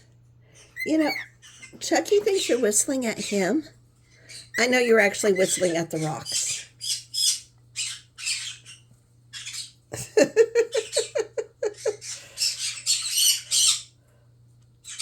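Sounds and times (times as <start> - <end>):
cockatiel chattering and whistling: 0.6 - 1.8, 4.3 - 8.8, 11.8 - 13.9.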